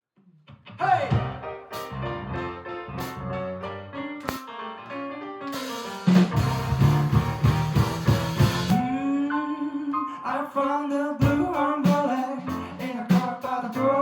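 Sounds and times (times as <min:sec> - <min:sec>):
keyboard chords: 0:01.1 - 0:11.5
drum kit with cymbals: 0:05.5 - 0:08.9, 0:11.2 - 0:13.9.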